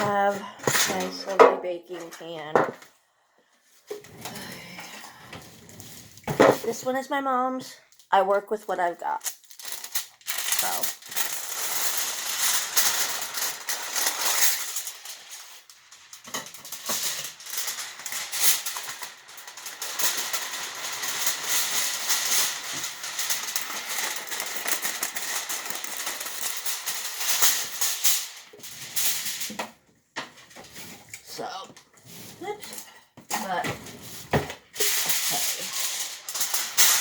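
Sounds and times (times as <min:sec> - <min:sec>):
aluminum foil crinkling: 0:00.0 - 0:01.3, 0:09.0 - 0:37.0.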